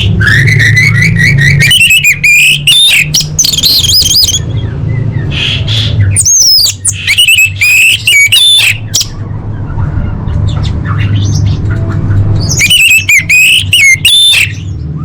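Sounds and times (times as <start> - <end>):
thrush whistling: 0.0 - 4.5, 12.4 - 15.0
steady low hum: 0.0 - 13.8.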